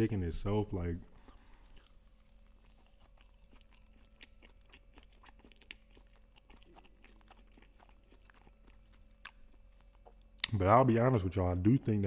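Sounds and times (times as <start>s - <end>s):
person chewing crunchy food: 1.2s - 10.6s.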